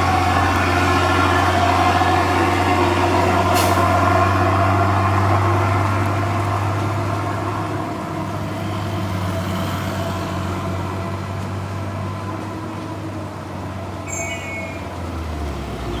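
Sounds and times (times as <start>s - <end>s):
truck engine droning: 0.0s - 16.0s
high-pitched squeal: 14.0s - 14.9s.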